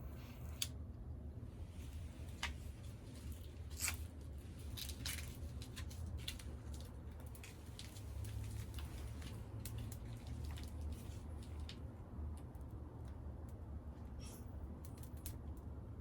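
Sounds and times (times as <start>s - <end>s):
wood fire crackling and popping: 3.8s - 11.8s.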